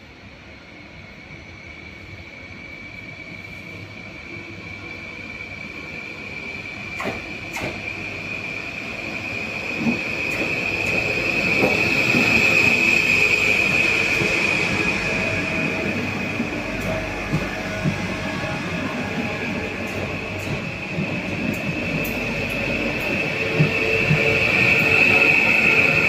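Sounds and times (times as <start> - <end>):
train wheels squealing: 0.0 - 26.0
rail clicks: 6.9 - 8.1, 9.7 - 26.0.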